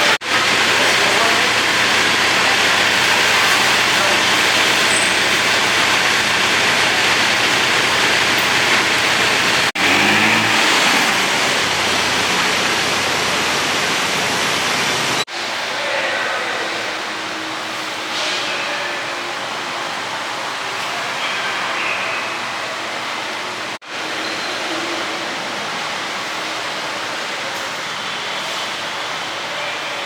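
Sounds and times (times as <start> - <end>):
city road traffic: 0.0 - 30.0.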